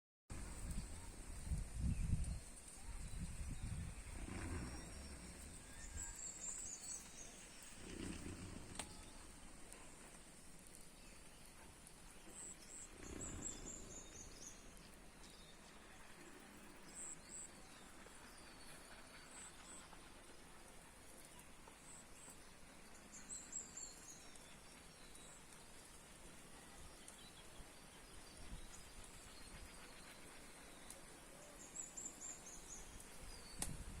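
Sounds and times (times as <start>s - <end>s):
quiet rural background noise: 0.3s - 34.0s
small birds chirping: 0.4s - 34.0s
sharp click: 33.6s - 33.8s.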